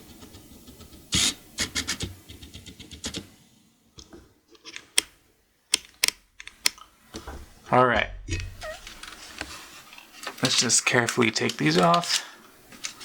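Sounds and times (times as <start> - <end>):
hand tools clicking and scraping: 8.4 - 13.0.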